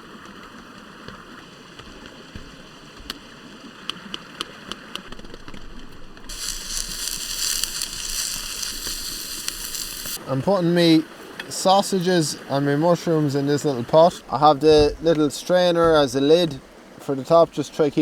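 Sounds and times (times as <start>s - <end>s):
rain on a tent: 0.0s - 10.6s
food sizzling in a pot: 6.3s - 10.2s.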